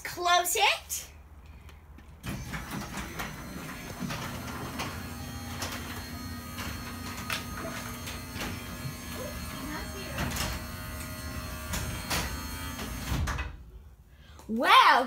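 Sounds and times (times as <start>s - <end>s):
garage door opener motor hum: 2.2s - 13.6s.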